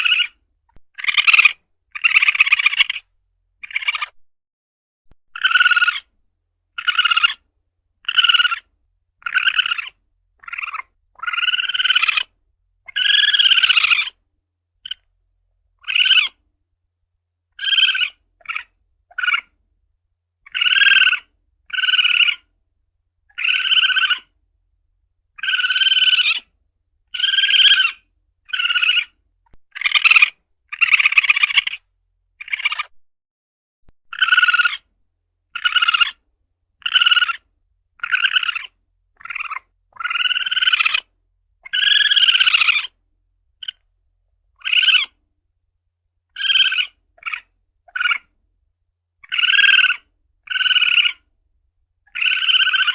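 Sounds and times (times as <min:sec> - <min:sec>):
civet harsh calls: 0:00.0 - 0:04.2, 0:05.3 - 0:06.1, 0:06.7 - 0:07.4, 0:08.0 - 0:14.2, 0:15.8 - 0:16.4, 0:17.5 - 0:19.6, 0:20.4 - 0:22.5, 0:23.3 - 0:24.4, 0:25.4 - 0:26.5, 0:27.1 - 0:32.9, 0:34.1 - 0:34.9, 0:35.5 - 0:36.2, 0:36.8 - 0:43.0, 0:43.6 - 0:43.8, 0:44.6 - 0:45.2, 0:46.3 - 0:48.3, 0:49.2 - 0:51.3, 0:52.1 - 0:52.9.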